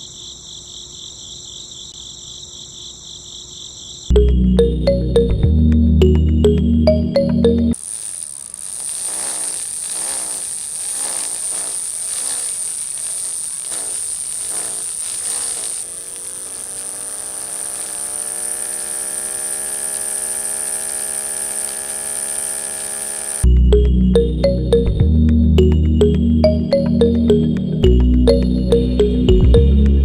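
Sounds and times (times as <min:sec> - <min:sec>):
small electric motor whining: 0:07.8 - 0:23.5.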